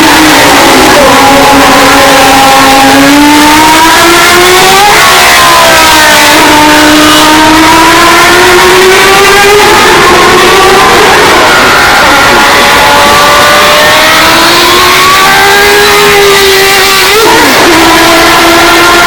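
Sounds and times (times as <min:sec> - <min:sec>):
race car engine accelerating: 0:00.0 - 0:19.0.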